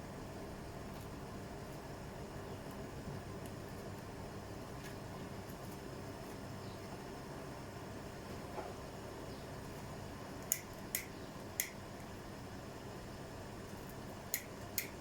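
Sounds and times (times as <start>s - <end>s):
washing machine humming: 0.0s - 15.0s
sharp ticks: 10.4s - 11.8s.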